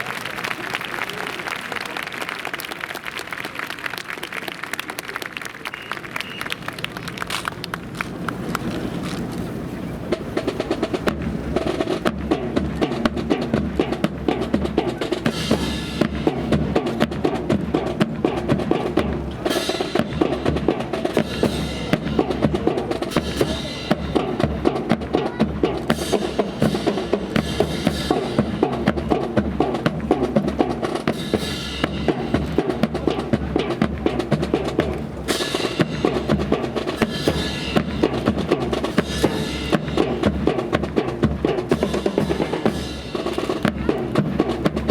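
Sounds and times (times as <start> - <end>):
drums sharp strikes: 10.0 - 44.9.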